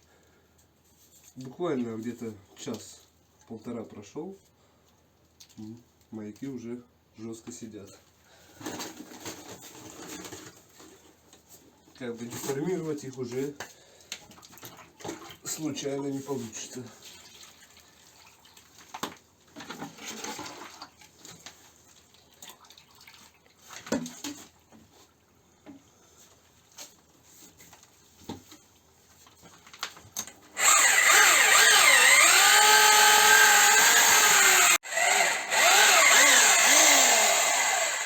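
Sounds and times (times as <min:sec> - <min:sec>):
drill mixing adhesive: 0:30.6 - 0:38.0.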